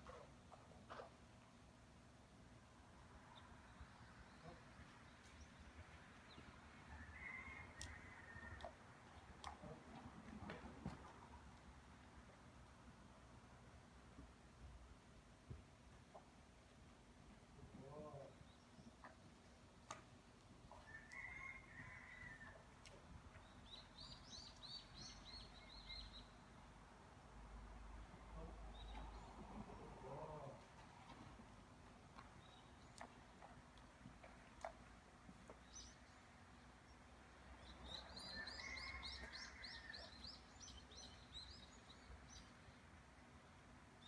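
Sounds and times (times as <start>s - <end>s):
songbird chirping: 20.7s - 26.5s, 28.0s - 31.4s, 32.2s - 44.0s
faint songbird chirps: 36.9s - 42.9s.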